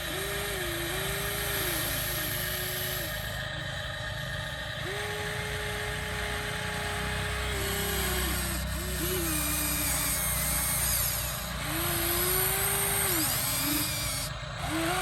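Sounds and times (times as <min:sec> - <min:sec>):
steady low hum: 0:00.0 - 0:15.0
toy electric motor whine: 0:00.0 - 0:15.0.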